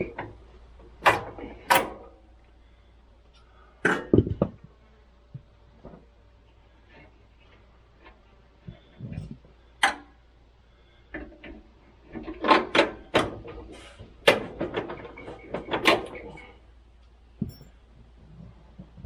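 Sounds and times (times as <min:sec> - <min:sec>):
metal tools clanking: 0:17.4 - 0:17.8.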